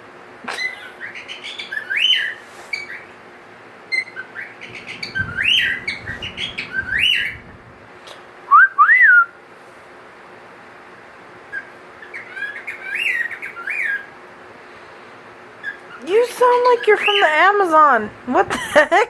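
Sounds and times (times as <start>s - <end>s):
cockatiel whistling calls: 0.6s - 3.1s, 3.9s - 7.5s, 11.5s - 14.1s, 15.6s - 16.0s.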